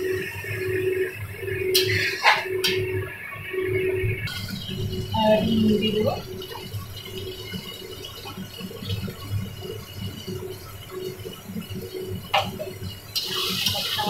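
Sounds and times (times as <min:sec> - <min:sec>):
bright frying hiss: 0:04.0 - 0:14.0
paste bubbling and frying in oil: 0:06.1 - 0:14.0.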